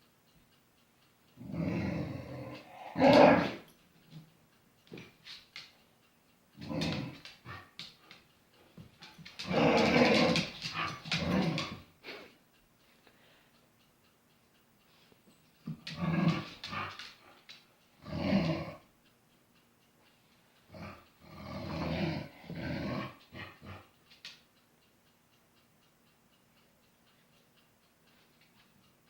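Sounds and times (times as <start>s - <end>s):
dog growling: 1.4s - 3.7s, 6.6s - 7.8s, 9.4s - 11.9s, 15.7s - 17.2s, 18.0s - 18.8s, 20.7s - 23.9s.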